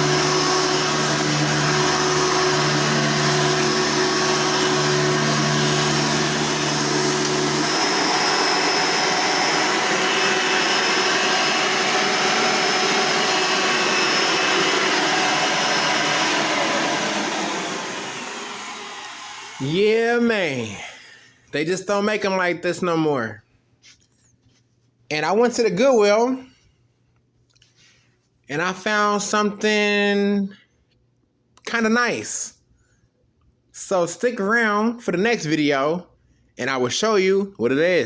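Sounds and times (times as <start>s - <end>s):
vacuum cleaner motors running: 0.0s - 21.3s.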